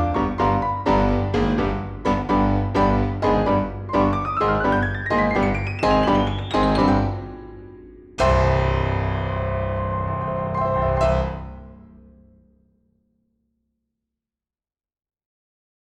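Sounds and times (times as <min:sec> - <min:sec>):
piano music: 0:00.0 - 0:12.2.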